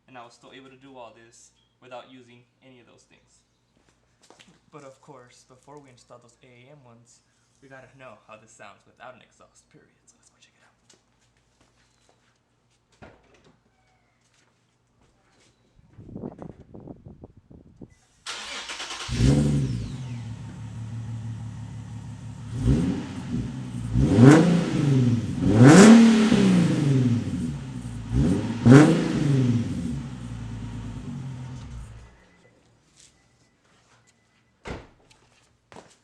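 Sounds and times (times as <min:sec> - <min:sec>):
car engine idling: 0:18.3 - 0:32.2
car engine revving: 0:18.3 - 0:32.2
car engine starting: 0:18.3 - 0:32.4.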